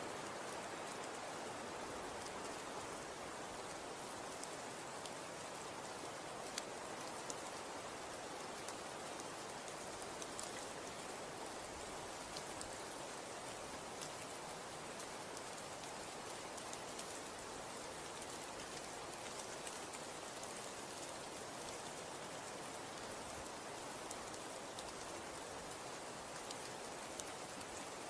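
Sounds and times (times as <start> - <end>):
snow falling with light ticks: 0.0 - 28.0.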